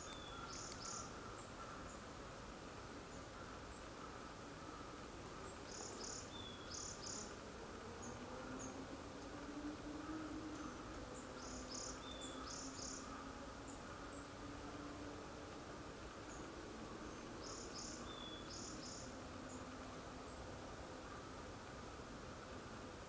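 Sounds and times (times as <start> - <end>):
faint high ticks: 0.0 - 1.0, 9.1 - 9.5, 15.4 - 16.6
faint low hum: 0.0 - 23.0.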